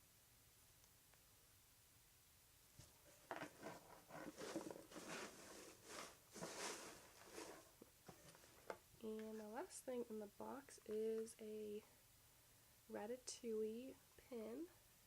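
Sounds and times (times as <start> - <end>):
paper and packaging rustling: 3.1 - 8.7.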